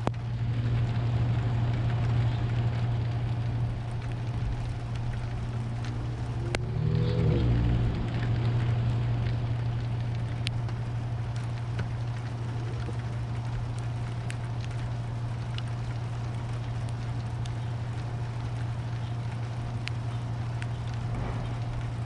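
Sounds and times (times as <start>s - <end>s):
constant low hum: 0.0s - 22.0s
rain falling: 0.0s - 22.0s
drip clicks: 8.0s - 22.0s.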